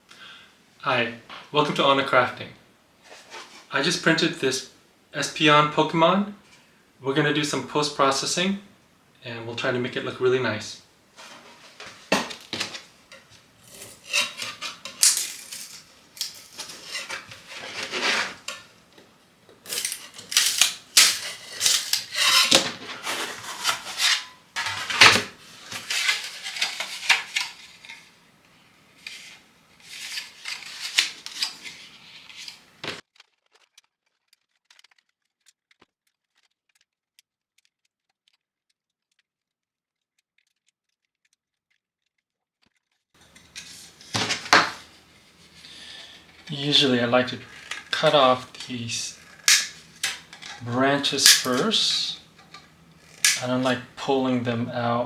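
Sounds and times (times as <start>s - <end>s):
small hard objects clattering: 11.2s - 28.1s, 43.2s - 54.0s.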